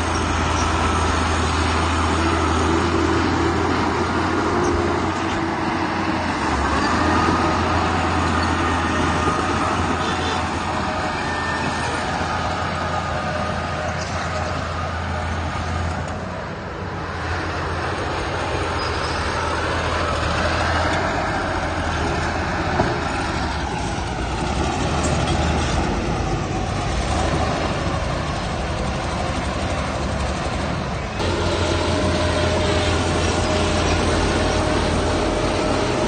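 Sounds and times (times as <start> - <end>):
diesel machinery humming: 0.0 - 36.0
steady whine: 27.6 - 36.0.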